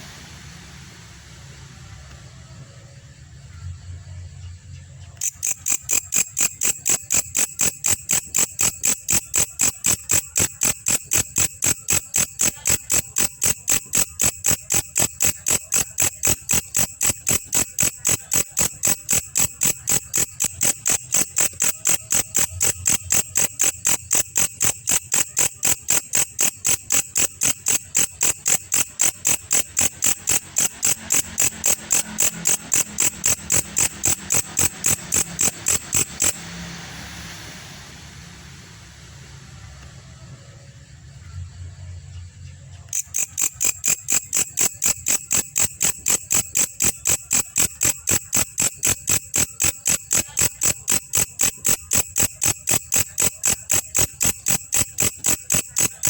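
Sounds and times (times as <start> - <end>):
insect high-pitched chirping: 3.4 - 36.8, 41.1 - 56.0.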